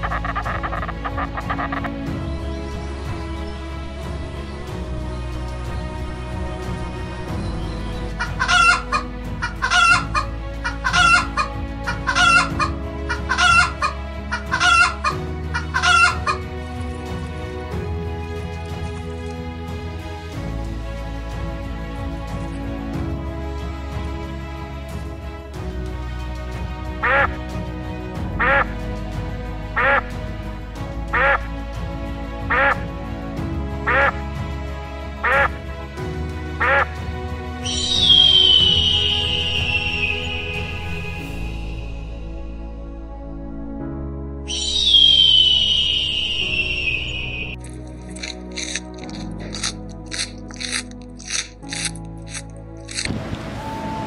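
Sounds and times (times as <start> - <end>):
chicken calls: 0.0 - 2.0, 8.2 - 16.4, 37.7 - 40.3
duck quacking: 0.0 - 2.0, 8.2 - 16.4, 27.0 - 27.3, 28.4 - 28.7, 29.8 - 30.1, 31.1 - 31.5, 32.5 - 32.8, 33.9 - 34.2, 35.2 - 35.6, 36.6 - 36.9
background music: 0.0 - 54.0.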